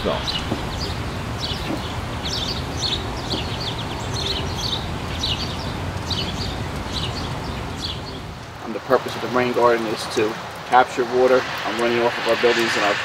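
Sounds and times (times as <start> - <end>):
songbirds chirping: 0.0 - 13.0
steady low background noise: 0.0 - 13.0.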